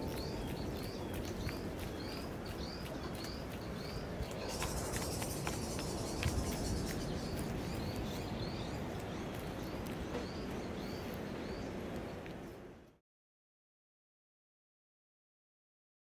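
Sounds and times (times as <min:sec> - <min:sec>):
small bird chirping: 0:00.0 - 0:12.3
low bump of wind: 0:00.0 - 0:12.9.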